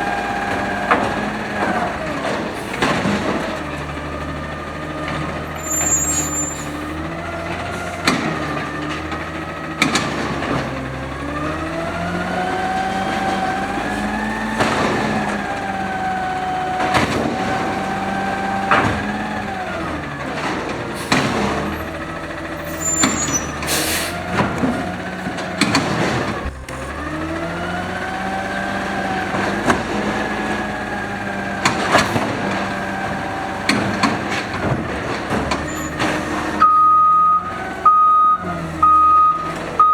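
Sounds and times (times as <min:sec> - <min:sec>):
truck engine revving: 0:00.0 - 0:39.9
air brake hiss: 0:23.6 - 0:24.2.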